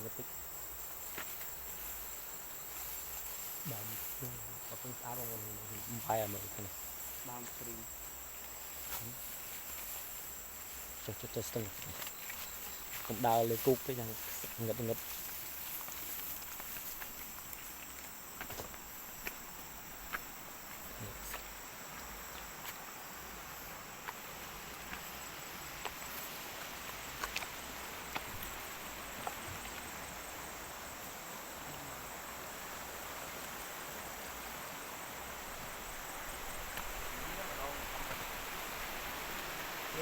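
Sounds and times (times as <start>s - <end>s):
insects chorus: 0.0s - 40.0s.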